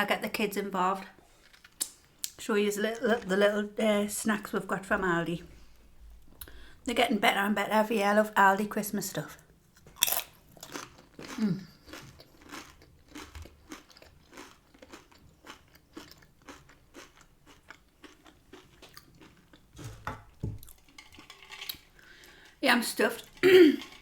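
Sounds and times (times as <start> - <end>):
crunching tortilla chewing: 9.8 - 19.9.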